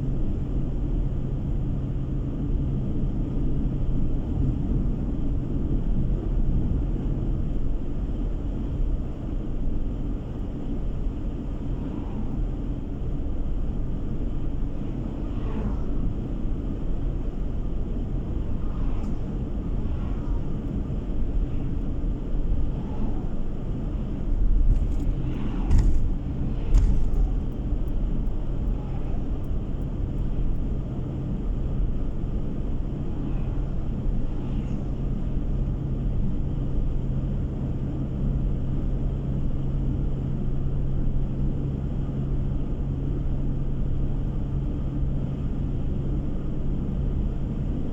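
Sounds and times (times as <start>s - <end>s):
car engine hum: 3.4s - 37.7s
tyre rumble on road: 22.5s - 29.3s
sharp knocks from road bumps: 24.7s - 27.6s.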